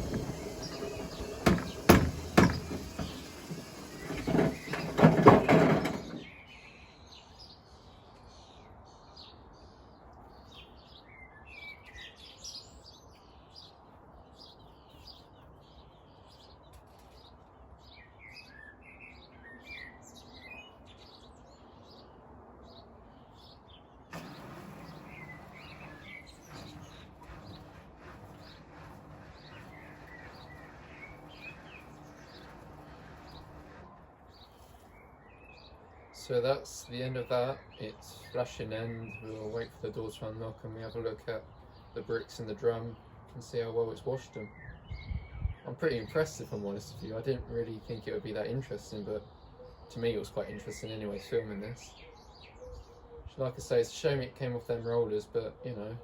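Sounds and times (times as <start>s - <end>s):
washing machine banging: 0.0s - 6.3s, 24.1s - 34.1s
birds chirping: 0.0s - 6.7s, 23.2s - 56.0s.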